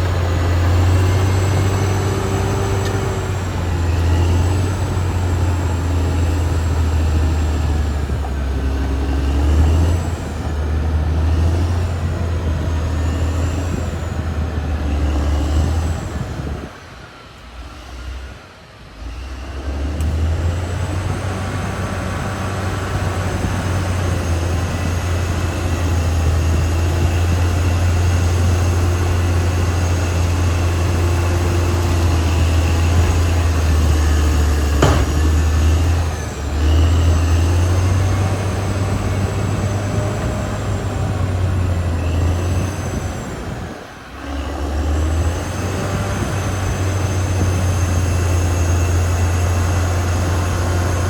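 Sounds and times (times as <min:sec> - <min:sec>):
bulldozer diesel engine: 0:00.0 - 0:51.0
sharp knock: 0:34.8 - 0:35.8.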